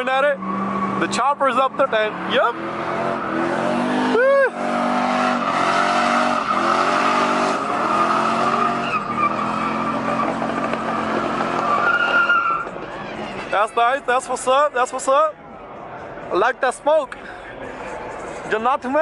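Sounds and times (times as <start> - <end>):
tyres squealing on pavement: 0.0 - 4.7, 5.3 - 15.2
car engine revving: 0.0 - 13.5.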